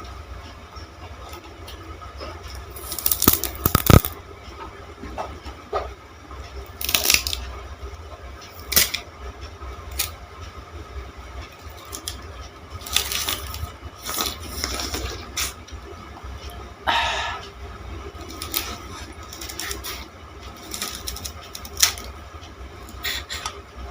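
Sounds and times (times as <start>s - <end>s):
crunching sugar cane: 2.6s - 4.2s, 6.8s - 7.4s, 8.6s - 9.0s, 9.9s - 10.2s, 11.6s - 12.2s, 12.8s - 15.6s, 18.2s - 22.1s.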